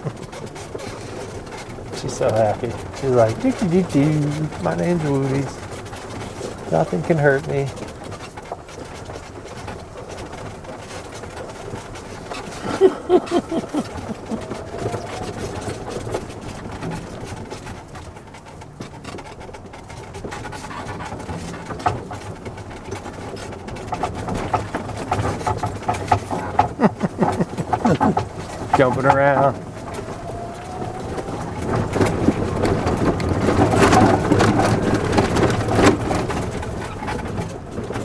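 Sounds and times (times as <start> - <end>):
golf cart motor hum: 0.0 - 38.0
quick pulses: 12.5 - 15.4, 26.7 - 32.4.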